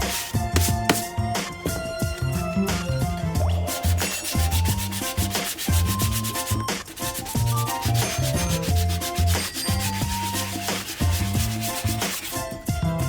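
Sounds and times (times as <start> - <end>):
sandpaper rubbing on suede: 0.0 - 1.1, 3.7 - 12.6
background music: 0.0 - 13.0.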